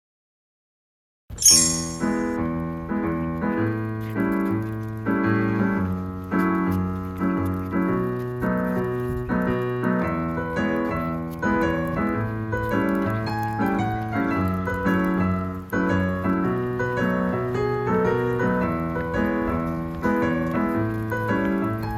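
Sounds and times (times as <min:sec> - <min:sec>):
piano-like keyboard tune: 0:01.3 - 0:21.9
bright high shimmer: 0:01.4 - 0:02.4.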